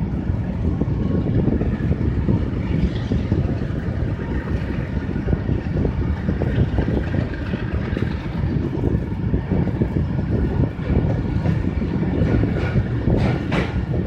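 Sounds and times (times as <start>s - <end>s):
train passing with heavy rumble: 0.0s - 14.0s
wheels rattling on track: 0.0s - 14.0s.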